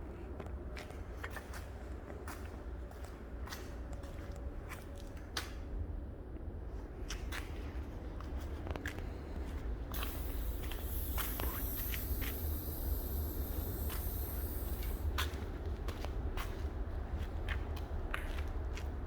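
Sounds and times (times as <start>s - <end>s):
air compressor humming: 9.9s - 15.2s
high hiss: 9.9s - 15.2s.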